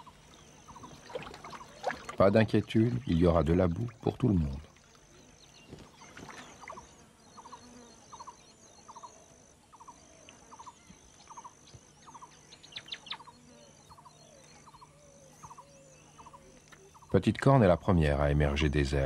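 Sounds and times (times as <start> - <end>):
high insect buzz: 2.9 - 17.2
small bird chirping: 5.1 - 17.2.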